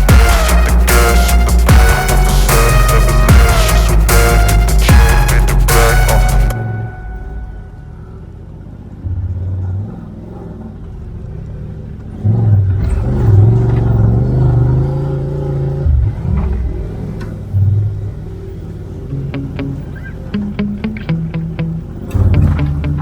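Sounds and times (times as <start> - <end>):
utility vehicle engine revving: 7.8 - 23.0.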